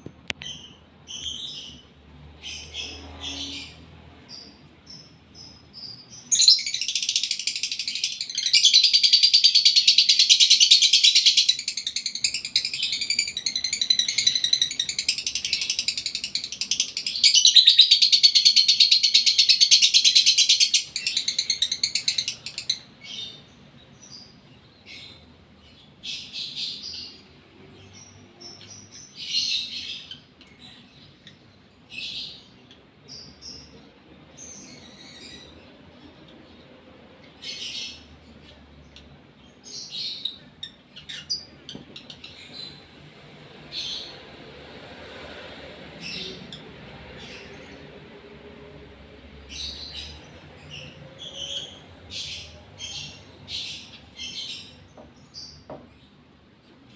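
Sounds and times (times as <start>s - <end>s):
bird chirps: 0.2s - 36.6s
lovebird chattering song: 2.4s - 25.3s.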